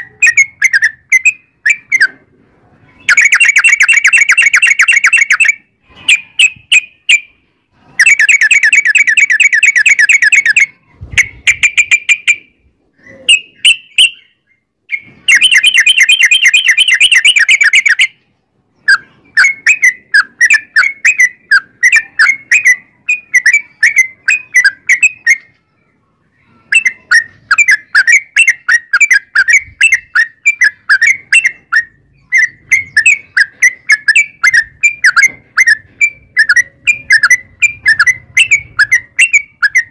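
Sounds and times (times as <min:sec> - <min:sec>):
bird rolling trills: 0:03.0 - 0:07.3, 0:14.9 - 0:18.2, 0:26.5 - 0:39.9.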